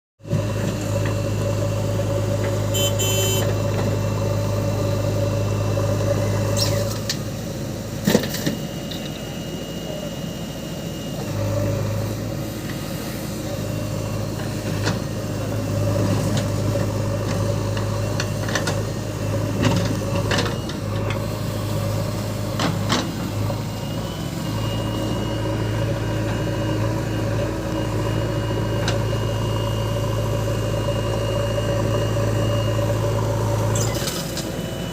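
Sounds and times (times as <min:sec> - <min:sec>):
backhoe diesel engine running: 0:00.2 - 0:34.9.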